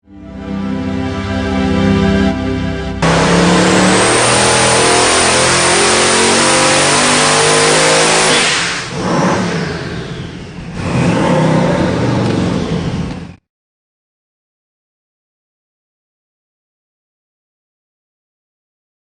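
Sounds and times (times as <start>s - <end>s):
car engine revving: 3.0s - 13.4s.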